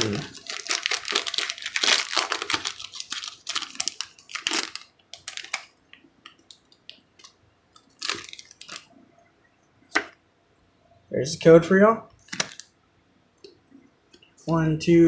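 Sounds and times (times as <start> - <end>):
foil wrapper crinkling: 0.0 - 8.9, 12.2 - 12.7.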